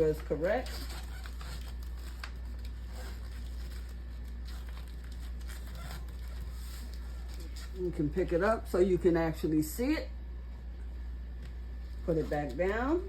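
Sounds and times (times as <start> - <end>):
paper wrapper rustling: 0.0 - 8.1
steady low hum: 0.0 - 13.0.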